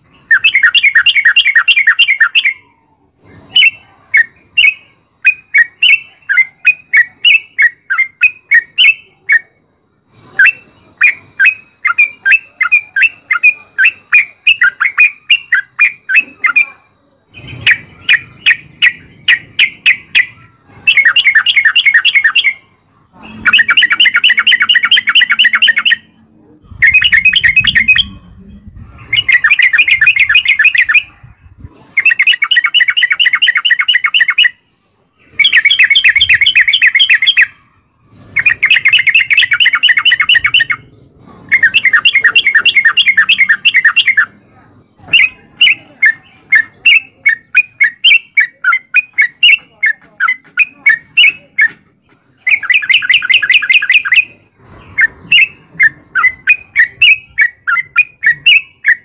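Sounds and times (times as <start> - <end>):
bird singing bubbly phrases: 0.0 - 9.6, 17.3 - 22.7, 23.3 - 31.1, 32.0 - 44.3, 52.4 - 59.0.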